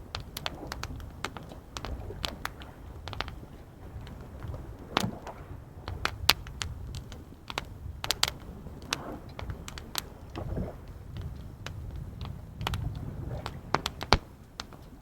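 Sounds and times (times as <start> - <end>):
rumble of waves: 0.0 - 15.0.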